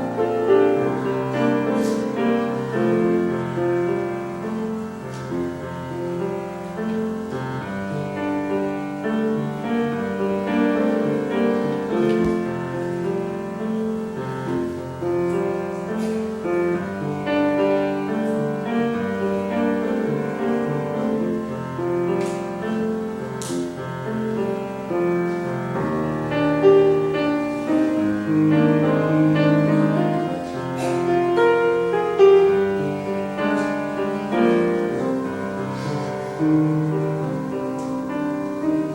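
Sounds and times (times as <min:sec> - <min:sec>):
slow piano chords: 0:00.0 - 0:38.9.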